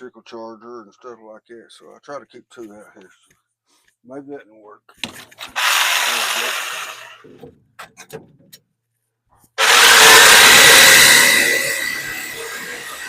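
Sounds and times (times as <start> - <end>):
power saw cutting metal: 5.1 - 7.4, 9.6 - 13.0.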